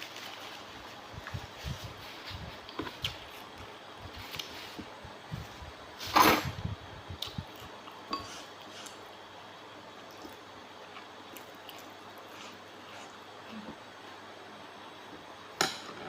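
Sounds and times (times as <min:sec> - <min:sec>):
wet eating sounds: 0:10.0 - 0:13.2.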